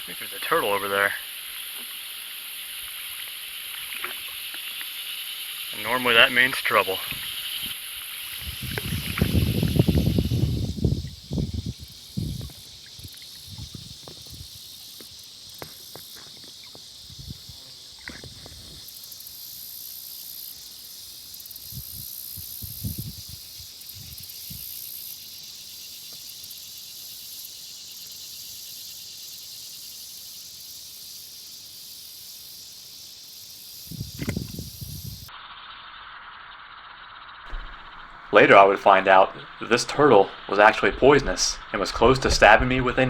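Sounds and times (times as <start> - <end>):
insects buzzing: 0.0 - 43.0
low thumps: 37.5 - 43.0.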